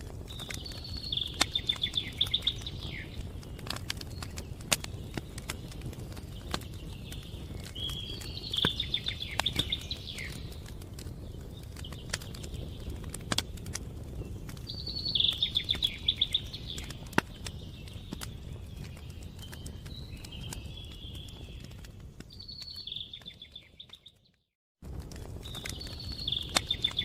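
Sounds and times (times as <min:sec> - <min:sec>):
wood fire crackling and popping: 0:00.0 - 0:27.0
bird singing fast notes: 0:14.7 - 0:17.1.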